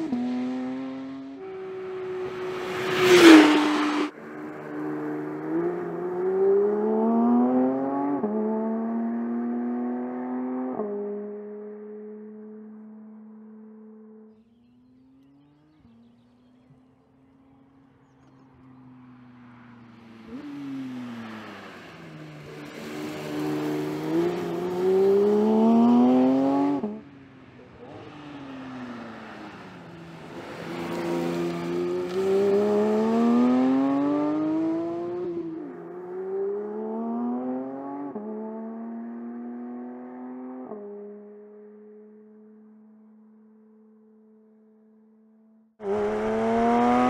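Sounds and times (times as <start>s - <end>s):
car engine accelerating hard: 20.1s - 40.5s, 45.8s - 47.0s.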